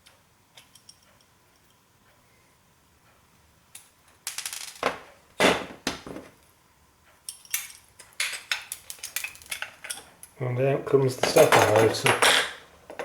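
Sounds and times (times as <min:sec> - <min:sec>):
metal parts clattering and clinking: 0:07.3 - 0:10.4, 0:11.2 - 0:13.0.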